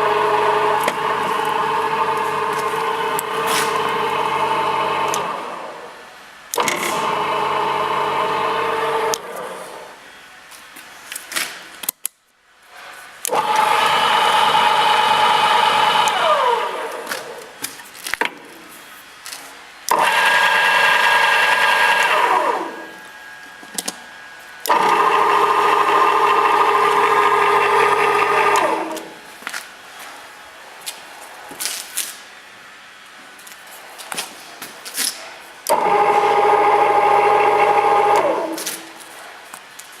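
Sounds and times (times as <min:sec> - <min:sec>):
metal saw running and winding down: 0:13.3 - 0:17.4, 0:19.9 - 0:23.0, 0:24.6 - 0:29.2, 0:35.7 - 0:38.7.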